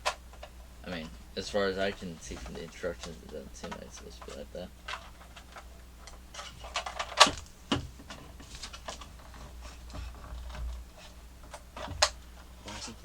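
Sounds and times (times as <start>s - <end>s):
plastic parts clicking and knocking: 2.2s - 10.8s, 11.4s - 12.2s.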